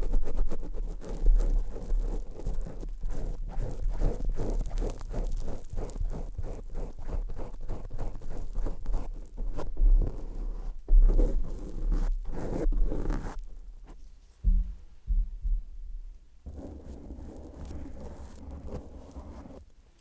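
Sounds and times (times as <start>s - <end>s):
crackly clicks and rubbing on microphone: 0.0s - 14.9s, 16.4s - 20.0s
low thumps: 13.5s - 16.6s.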